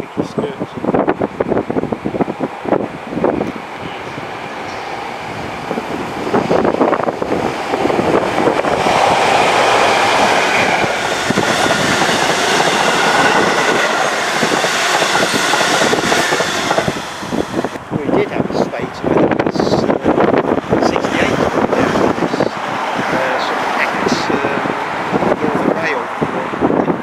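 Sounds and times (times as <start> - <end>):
train wheels clattering on rails: 4.6 - 17.8.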